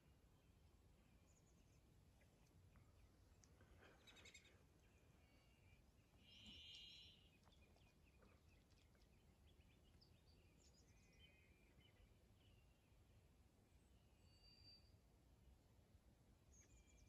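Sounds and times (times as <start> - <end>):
faint low background noise: 0.0 - 17.0
small birds chirping and trilling: 1.1 - 12.9.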